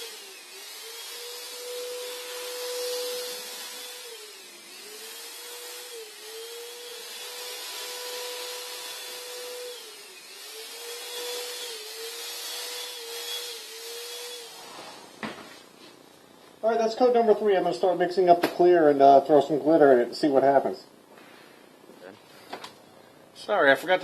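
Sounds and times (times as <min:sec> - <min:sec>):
paint sprayer motor whine: 0:00.0 - 0:14.6.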